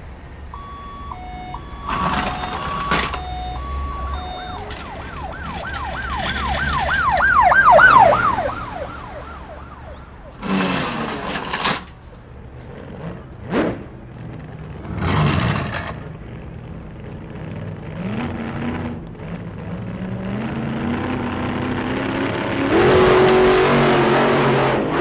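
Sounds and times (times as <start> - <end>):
emergency vehicle siren: 0.0 - 14.8, 15.5 - 25.0.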